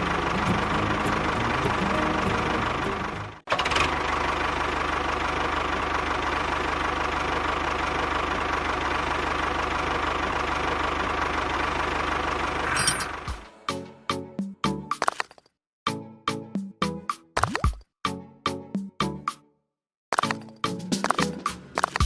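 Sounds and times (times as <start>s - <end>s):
engine running steadily: 0.0s - 13.6s.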